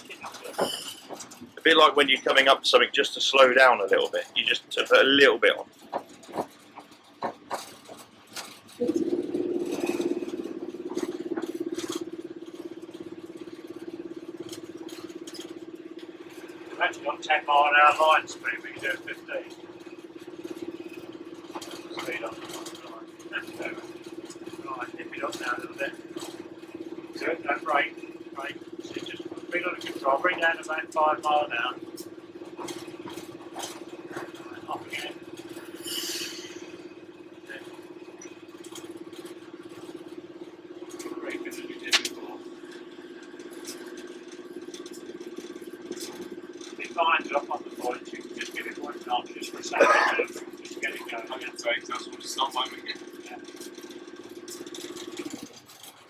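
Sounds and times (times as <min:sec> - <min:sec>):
locomotive engine throbbing hum: 0:00.0 - 0:56.0
faint short hisses: 0:35.8 - 0:36.5
clicks: 0:41.8 - 0:42.4.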